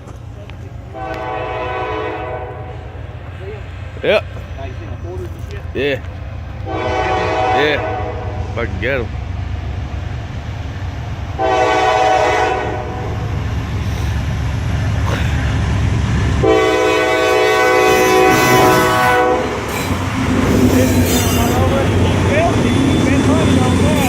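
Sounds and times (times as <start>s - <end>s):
train rumble: 0.0s - 24.0s
locomotive air horn blasts: 0.9s - 2.9s, 6.6s - 8.5s, 11.4s - 13.2s, 16.4s - 21.8s.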